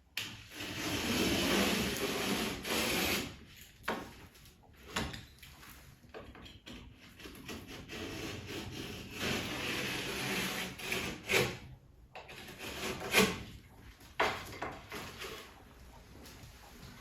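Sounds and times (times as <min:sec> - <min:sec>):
wood rubbing and scraping: 0:00.4 - 0:03.4, 0:06.7 - 0:11.6, 0:12.2 - 0:17.0.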